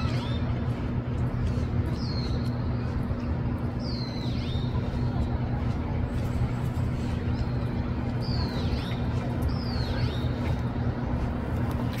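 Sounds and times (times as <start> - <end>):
low hum and rumble: 0.0 - 12.0.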